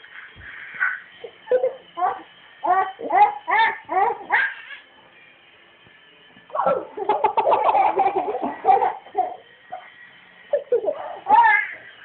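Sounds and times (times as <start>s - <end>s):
child laughing: 0.9s - 4.6s, 6.6s - 9.4s, 10.5s - 11.8s.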